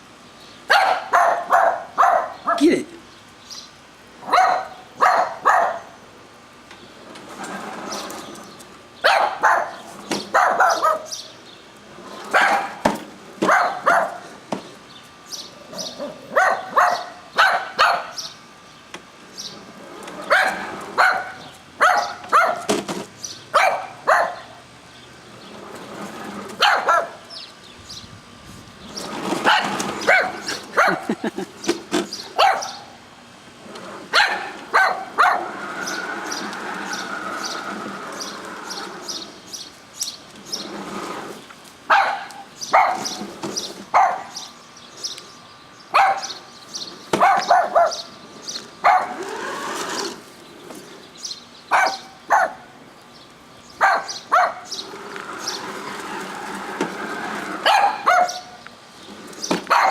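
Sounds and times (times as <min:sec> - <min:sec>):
dog barking: 0:00.7 - 0:02.6, 0:04.2 - 0:05.9, 0:09.0 - 0:11.1, 0:12.3 - 0:12.8, 0:13.4 - 0:14.2, 0:16.3 - 0:18.2, 0:20.3 - 0:22.7, 0:23.6 - 0:24.5, 0:26.6 - 0:27.2, 0:29.5 - 0:31.1, 0:32.4 - 0:32.9, 0:34.1 - 0:35.6, 0:41.9 - 0:43.1, 0:44.0 - 0:44.4, 0:46.0 - 0:46.4, 0:47.2 - 0:48.1, 0:48.8 - 0:49.2, 0:51.7 - 0:52.6, 0:53.8 - 0:54.7, 0:57.6 - 0:58.5.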